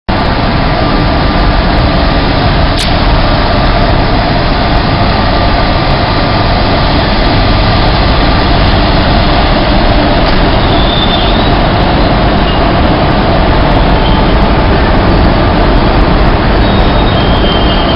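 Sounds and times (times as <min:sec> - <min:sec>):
electric train rumbling on track: 0:00.1 - 0:17.9
sharp click: 0:02.8 - 0:03.0.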